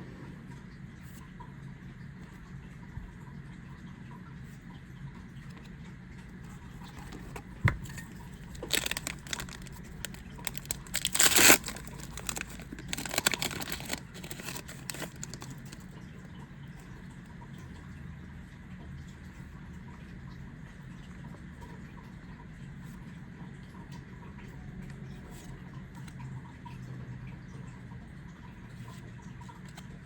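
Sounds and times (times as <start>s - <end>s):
foil pack tearing and crinkling: 8.4s - 15.8s.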